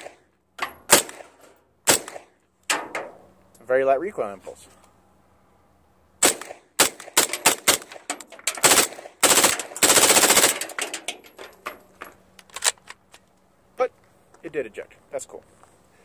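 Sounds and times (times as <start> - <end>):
carbine gunshots: 0.0 - 0.2, 0.9 - 2.4, 6.2 - 10.8.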